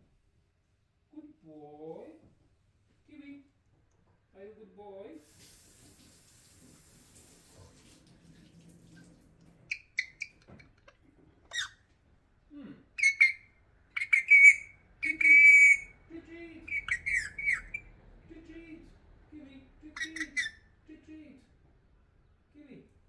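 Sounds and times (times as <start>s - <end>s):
parrot whistled calls and squawks: 9.7s - 10.9s, 11.5s - 11.8s, 13.0s - 13.4s, 14.0s - 16.0s, 16.7s - 17.9s, 20.0s - 20.6s.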